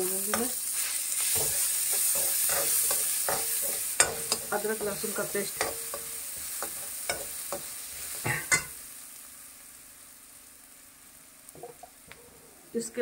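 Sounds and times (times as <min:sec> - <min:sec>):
onions sizzling in hot oil: 0:00.0 - 0:13.0
utensil knocking and scraping pan: 0:01.3 - 0:08.7.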